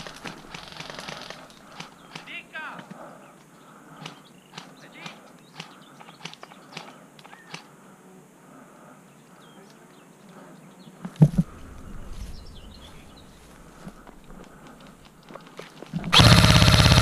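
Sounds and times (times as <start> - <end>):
light crackles: 0.0 - 7.7, 9.2 - 17.0
faint bird chirps: 0.0 - 7.8, 9.0 - 15.2
loud thump: 11.1 - 14.2
low rumble: 11.1 - 15.3.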